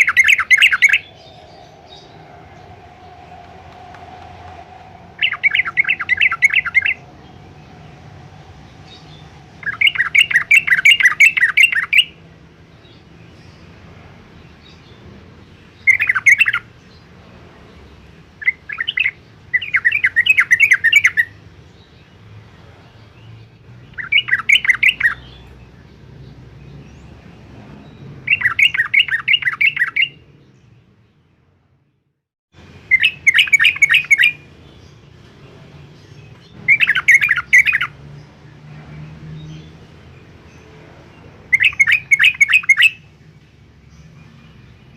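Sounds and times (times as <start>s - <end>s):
low hum: 0.0s - 11.5s.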